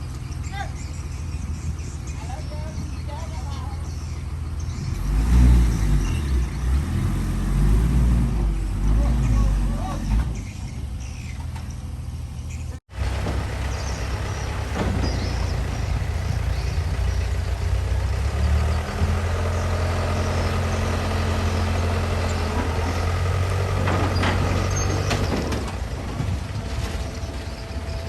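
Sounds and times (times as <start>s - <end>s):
diesel engine running: 0.0s - 28.0s
short knocks and clanks: 13.0s - 17.6s, 22.3s - 28.0s.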